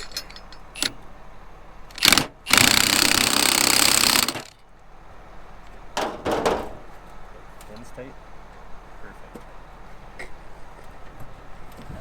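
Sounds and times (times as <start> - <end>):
impact wrench hammering: 2.0 - 4.6.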